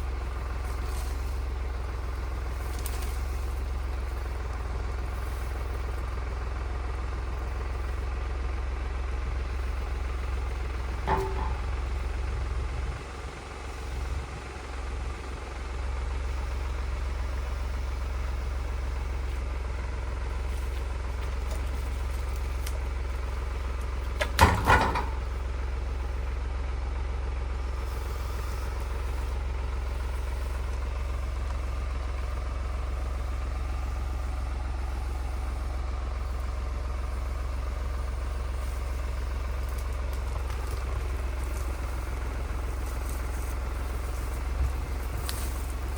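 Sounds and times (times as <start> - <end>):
tractor engine running: 0.0 - 45.9
sharp knocks: 11.0 - 11.8.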